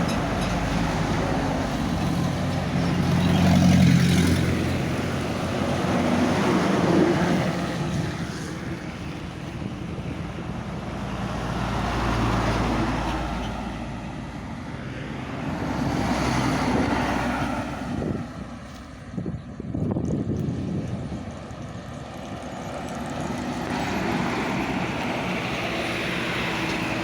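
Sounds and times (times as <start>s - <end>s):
truck running on road: 0.0s - 27.0s
wind rumbling on microphone: 15.4s - 27.0s.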